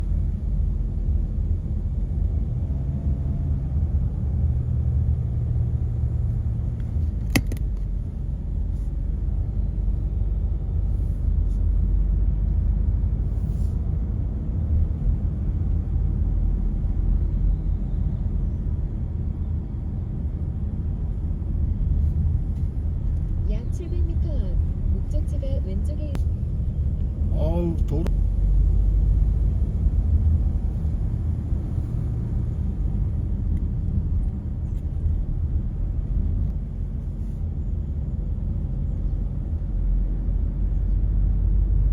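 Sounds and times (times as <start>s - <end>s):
car driving road rumble: 0.0s - 41.9s
sharp click: 7.2s - 7.9s.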